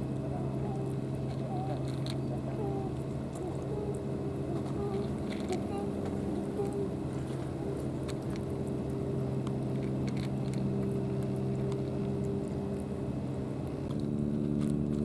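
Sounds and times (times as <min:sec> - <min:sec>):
motorboat engine humming: 0:00.0 - 0:15.0.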